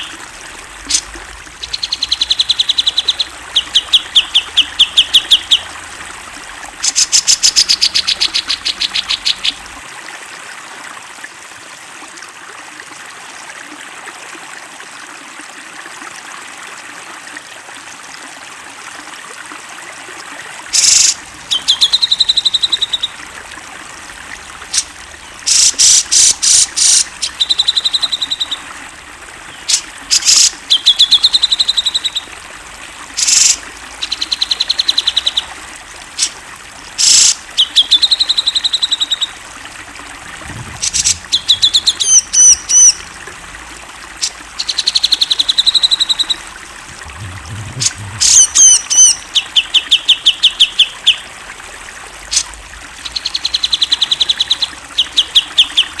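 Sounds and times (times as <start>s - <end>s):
bulbul singing: 0.0s - 5.8s, 20.7s - 35.6s, 40.8s - 43.2s, 44.2s - 51.2s.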